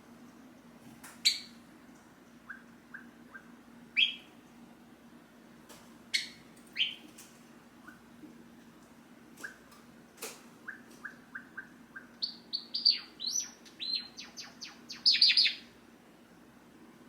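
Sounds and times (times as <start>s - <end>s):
sparrow singing: 1.2s - 1.6s, 2.5s - 4.3s, 6.1s - 7.0s, 10.6s - 15.7s.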